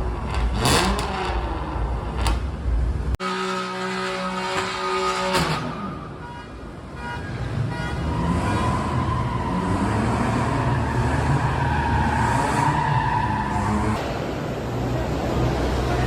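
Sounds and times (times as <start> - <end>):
car engine at high revs: 0.0 - 5.7.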